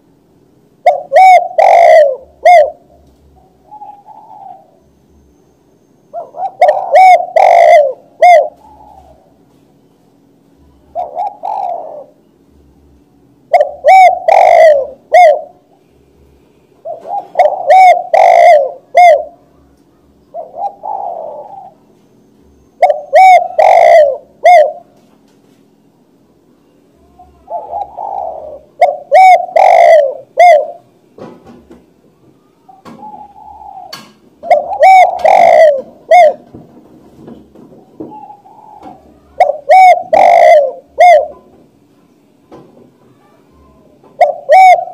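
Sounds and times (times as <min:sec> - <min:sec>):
dove cooing: 0:00.8 - 0:04.8, 0:06.1 - 0:09.4, 0:10.6 - 0:12.6, 0:13.5 - 0:15.8, 0:16.8 - 0:25.0, 0:27.0 - 0:30.9, 0:32.4 - 0:36.7, 0:37.8 - 0:41.6, 0:43.2 - 0:44.9.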